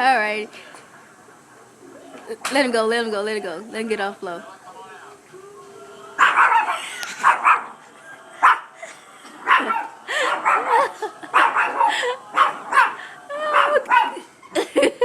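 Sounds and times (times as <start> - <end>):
small dog barking: 6.2 - 7.8, 9.4 - 14.2.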